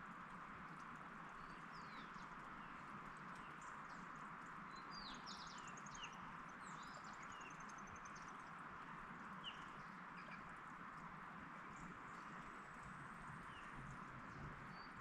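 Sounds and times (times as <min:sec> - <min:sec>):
small birds singing: 0:01.3 - 0:10.5, 0:13.2 - 0:15.0.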